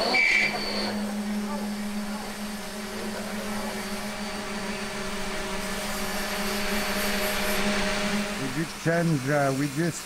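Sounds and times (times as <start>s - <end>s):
motor running: 0.0s - 10.0s
hiss: 5.7s - 10.0s.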